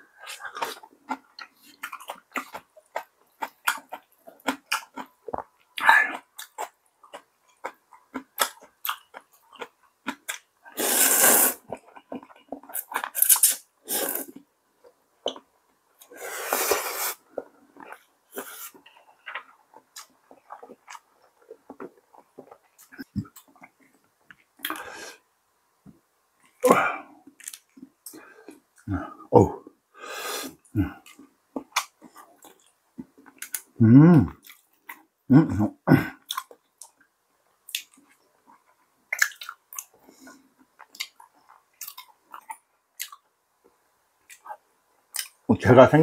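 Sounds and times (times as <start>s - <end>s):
food crunching: 0.2s - 15.5s, 16.5s - 25.0s, 27.2s - 28.6s, 36.2s - 45.4s
person chewing: 0.2s - 25.1s, 26.5s - 29.1s, 30.2s - 35.0s, 36.0s - 43.3s, 44.2s - 45.4s.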